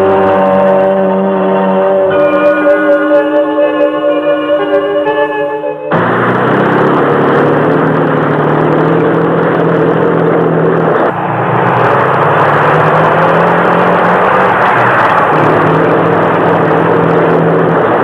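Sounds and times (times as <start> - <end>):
music: 0.0 - 6.1
loud engine drone: 0.0 - 18.0.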